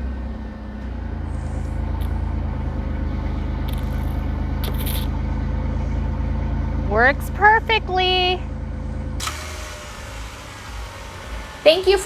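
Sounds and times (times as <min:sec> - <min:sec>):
van engine idling: 0:00.0 - 0:12.0.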